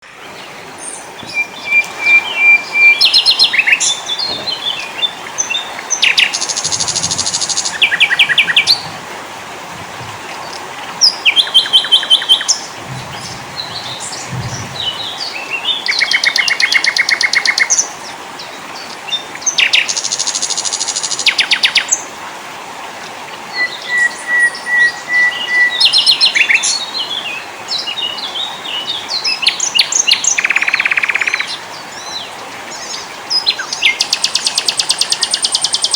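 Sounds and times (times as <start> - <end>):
songbirds singing and calling: 0.0 - 22.2, 23.0 - 35.9
steady hiss: 0.1 - 15.9.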